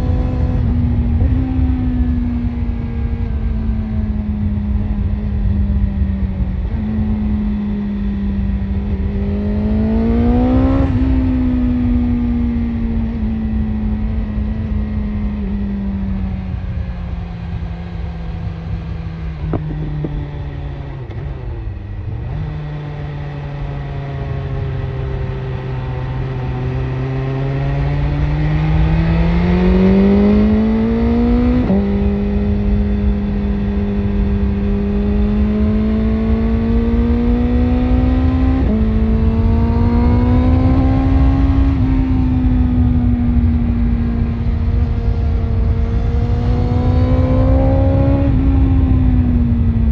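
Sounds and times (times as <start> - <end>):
wind on microphone: 0.0 - 21.3
motorcycle engine revving: 0.0 - 49.9.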